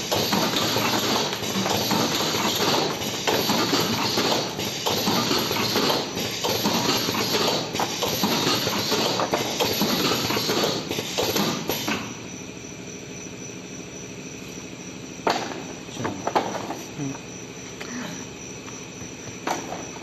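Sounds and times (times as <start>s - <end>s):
cartoning machine clattering: 0.0s - 12.1s
sharp machine clack: 0.0s - 12.2s
machine running hum: 0.0s - 20.0s.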